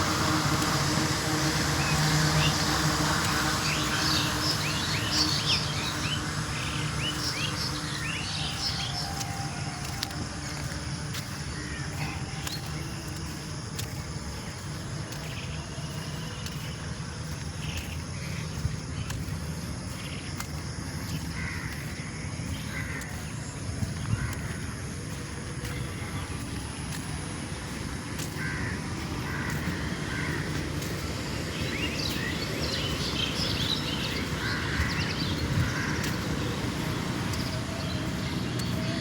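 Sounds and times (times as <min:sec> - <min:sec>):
small birds chirping: 0:00.0 - 0:39.0
low background rumble: 0:21.0 - 0:39.0.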